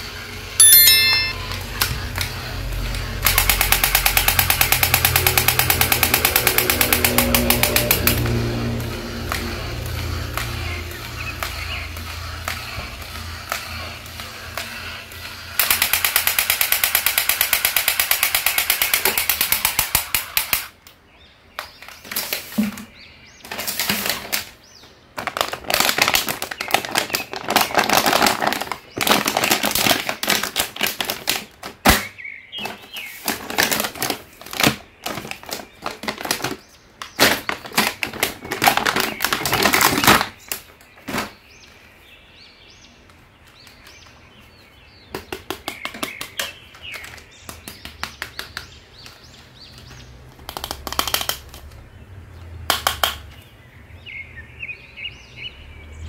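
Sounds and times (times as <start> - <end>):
toy machine-gun rattle: 3.0 - 8.3, 11.4 - 20.7, 50.5 - 51.6.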